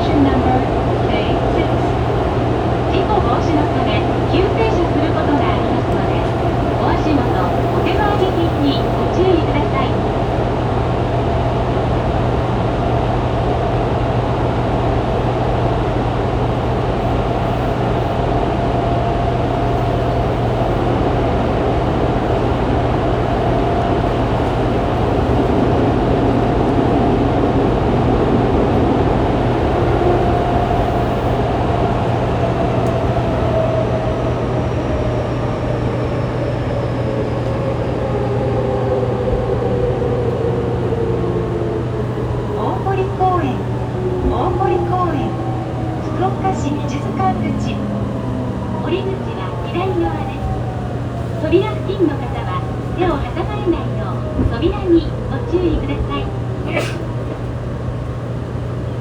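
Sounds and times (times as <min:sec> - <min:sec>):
train rumbling in tunnel: 0:00.0 - 0:59.0
air conditioning humming: 0:43.0 - 0:57.2.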